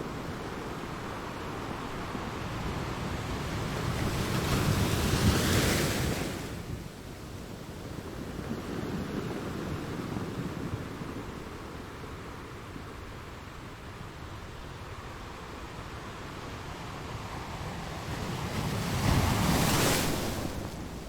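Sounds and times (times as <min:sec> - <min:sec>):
waves breaking on shore: 0:14.9 - 0:21.0.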